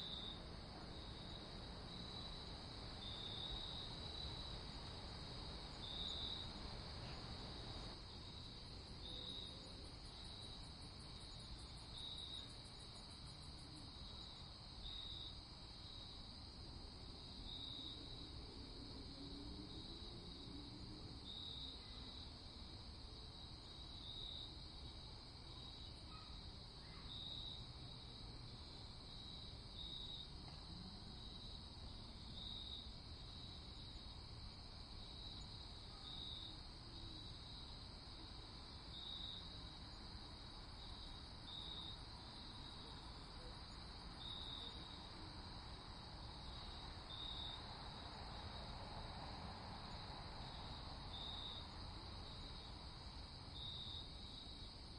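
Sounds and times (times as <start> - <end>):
crickets chirping: 0.0 - 54.9.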